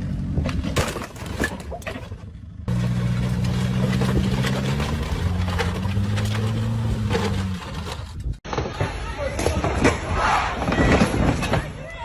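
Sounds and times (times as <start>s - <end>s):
vehicle engine humming: 0.0s - 8.4s.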